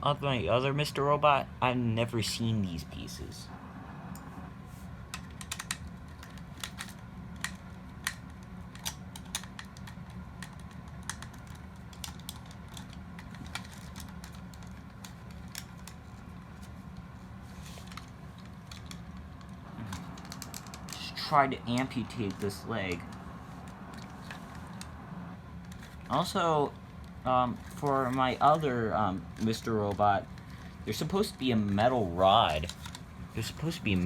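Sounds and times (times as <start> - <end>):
steady low hum: 0.0 - 34.0
plastic toy parts clicking: 5.1 - 16.0.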